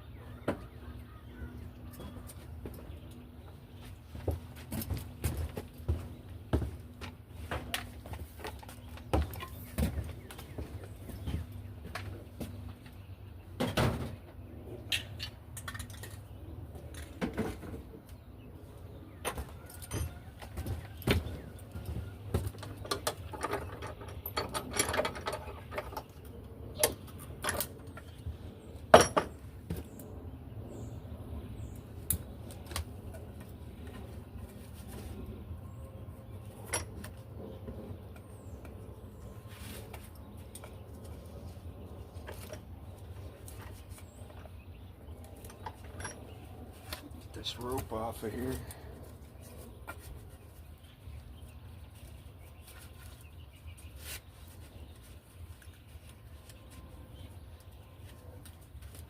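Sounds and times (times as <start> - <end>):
tools clicking and clattering: 14.9 - 17.2, 22.4 - 28.2, 45.2 - 47.6.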